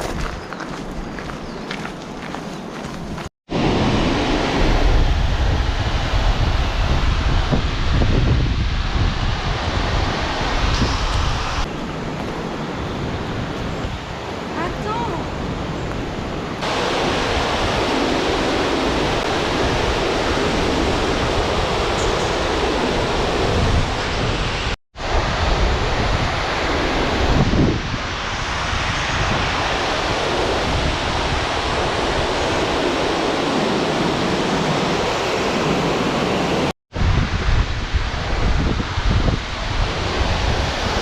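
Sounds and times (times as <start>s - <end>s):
wind rumbling on microphone: 0.0s - 41.0s
waterfall rushing: 16.6s - 25.2s.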